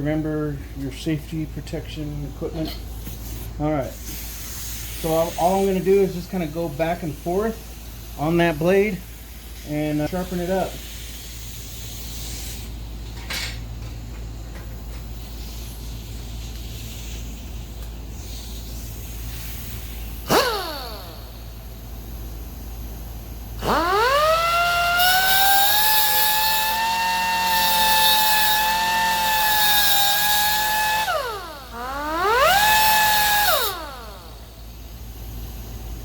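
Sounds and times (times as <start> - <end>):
pneumatic die grinder whining: 14.2 - 21.9, 23.4 - 35.1.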